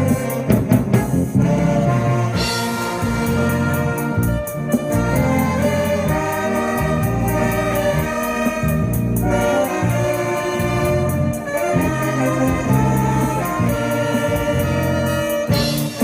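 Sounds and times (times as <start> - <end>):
horn-like melody: 0.0 - 16.0
live band music: 0.0 - 16.0.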